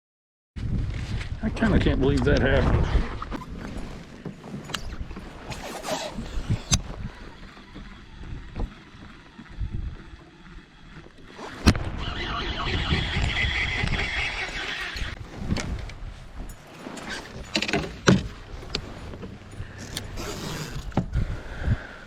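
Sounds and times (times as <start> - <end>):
gear knocking in a kayak: 3.3 - 11.9, 15.0 - 21.2.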